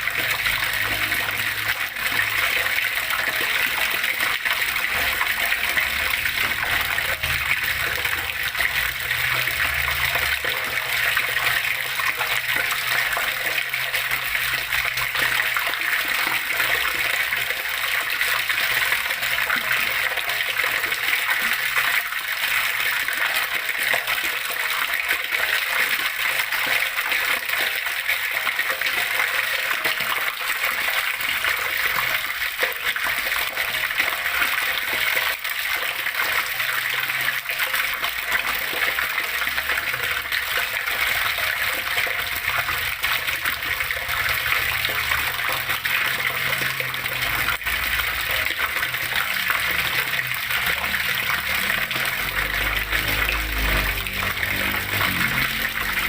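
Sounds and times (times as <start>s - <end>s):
water flowing and splashing: 0.0s - 56.0s.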